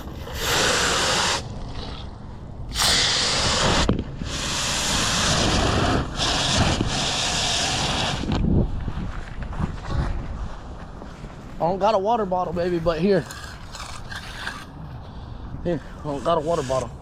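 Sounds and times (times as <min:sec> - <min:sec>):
water hissing from hose nozzle: 0:00.2 - 0:01.5, 0:02.7 - 0:08.3.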